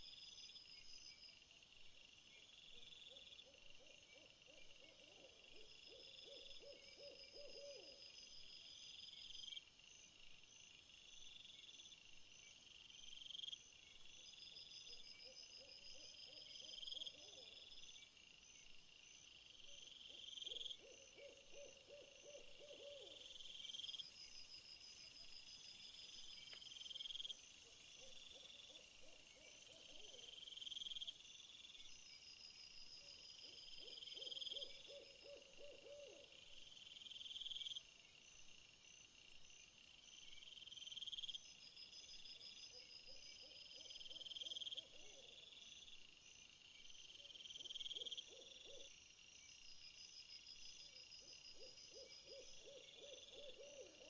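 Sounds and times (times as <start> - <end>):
low trilling insect call: 0.0 - 54.0
insects calling: 19.4 - 32.3, 33.0 - 54.0.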